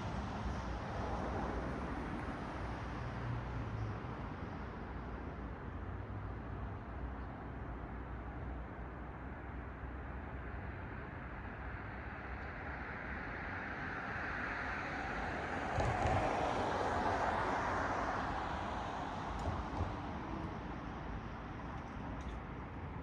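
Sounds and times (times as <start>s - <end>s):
traffic hum: 0.0s - 23.0s
car passing on road: 11.8s - 23.0s.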